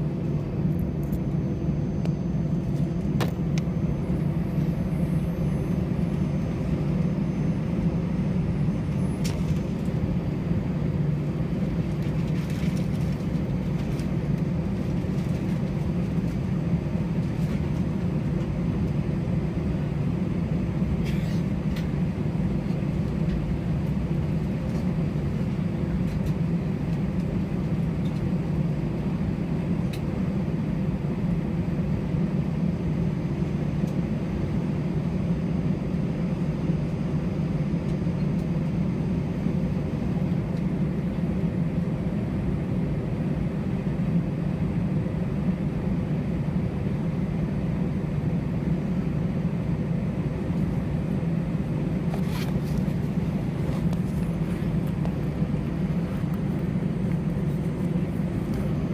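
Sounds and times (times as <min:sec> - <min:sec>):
airplane cabin rumble and hum: 0:00.0 - 0:58.9.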